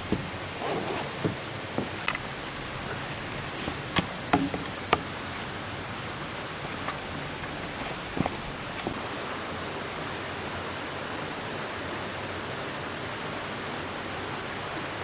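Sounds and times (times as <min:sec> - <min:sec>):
light clicks and knocks: 0:00.0 - 0:09.0
stream flowing over rocks: 0:00.0 - 0:15.0.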